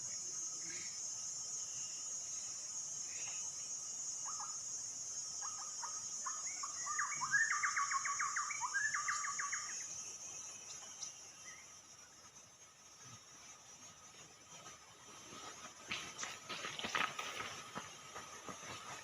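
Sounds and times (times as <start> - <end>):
high insect drone: 0.0 - 19.0
bird calling: 5.4 - 9.9.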